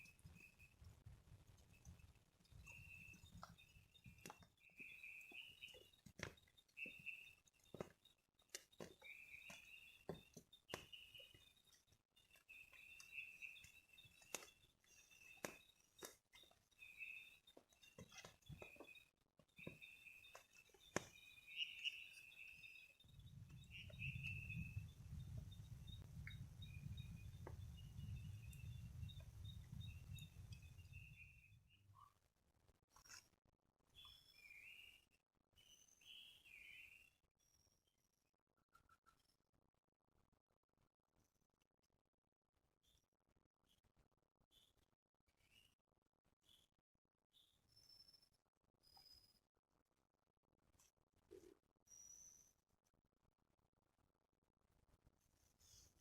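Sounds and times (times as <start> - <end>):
high chirping calls: 2.6 - 7.9, 8.5 - 11.6, 12.3 - 15.7, 19.6 - 31.4.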